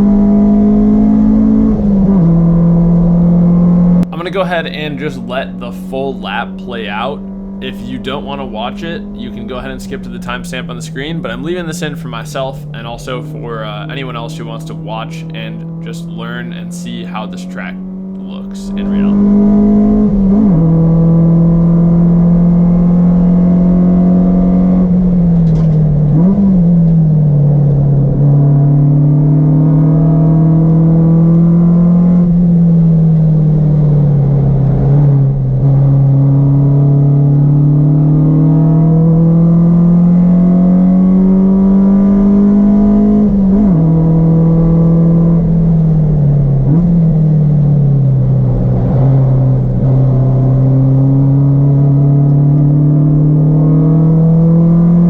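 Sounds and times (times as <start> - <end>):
car engine at full throttle: 0.0 - 55.0
engine rev blip: 3.9 - 22.7.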